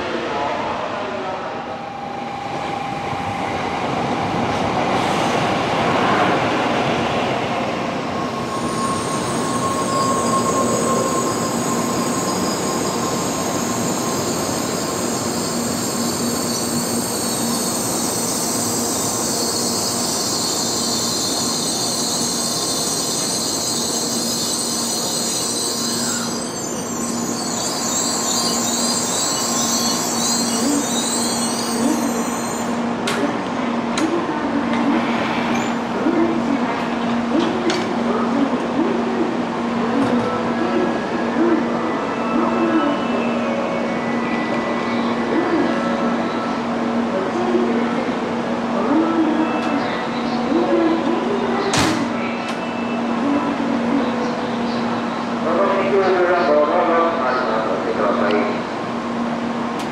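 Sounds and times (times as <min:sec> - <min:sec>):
train running noise: 0:00.0 - 0:59.9
wheel and brake squeal: 0:08.3 - 0:32.8.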